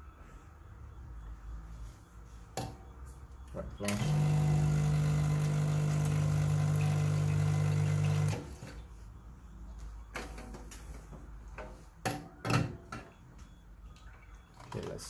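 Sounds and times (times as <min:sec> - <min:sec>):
espresso machine pump humming: 0:03.8 - 0:08.5.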